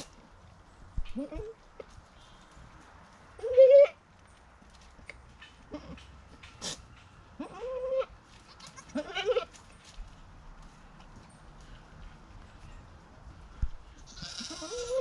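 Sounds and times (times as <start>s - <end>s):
goat bleating: 7.4s - 9.5s, 14.0s - 15.0s.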